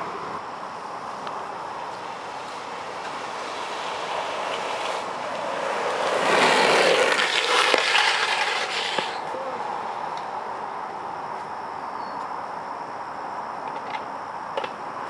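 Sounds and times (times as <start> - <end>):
longboard wheels rolling on asphalt: 0.0 - 11.5.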